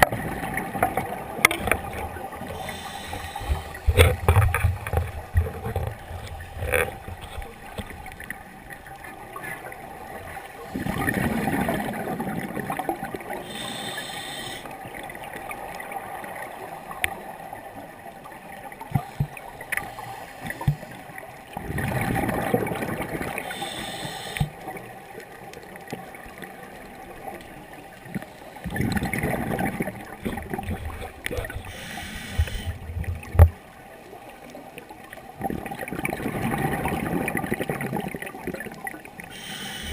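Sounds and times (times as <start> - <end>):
regulator inhale hiss: 2.5 - 4.2, 13.4 - 14.7, 19.1 - 21.0, 23.4 - 24.6, 31.6 - 32.8, 39.3 - 39.9
exhaled bubbles rushing: 10.7 - 13.3, 21.5 - 23.4, 28.7 - 31.7, 35.4 - 39.0.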